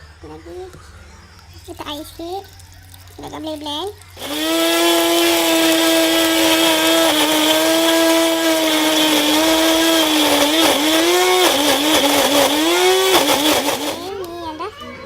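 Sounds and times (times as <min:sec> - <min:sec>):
blender motor whining: 0:04.2 - 0:14.4.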